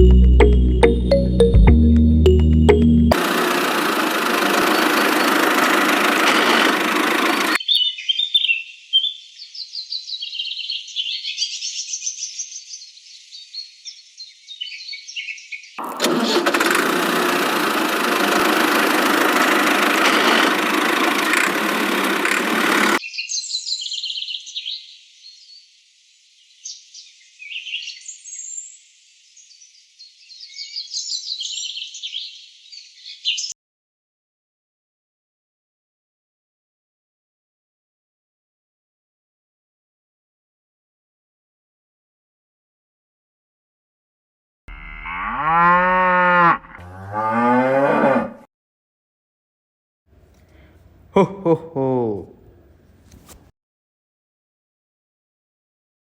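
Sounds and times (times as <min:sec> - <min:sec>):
small birds chirping: 0:07.6 - 0:15.8, 0:23.0 - 0:33.5.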